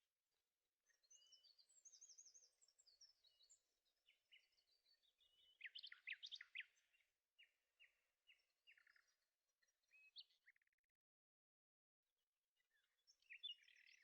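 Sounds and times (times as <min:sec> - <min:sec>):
faint birdsong chirps: 0:00.0 - 0:14.0.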